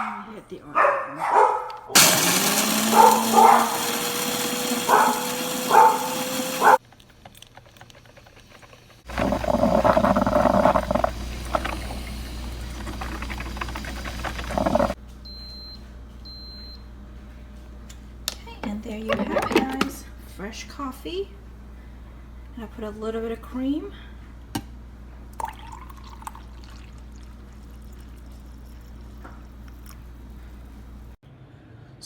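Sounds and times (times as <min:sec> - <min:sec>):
dog barking: 0:00.0 - 0:02.0, 0:02.8 - 0:04.0, 0:04.8 - 0:06.8
coffee maker hissing and gurgling: 0:02.0 - 0:06.8, 0:07.9 - 0:15.0, 0:25.4 - 0:31.0
coffee grinder whining: 0:02.0 - 0:15.0.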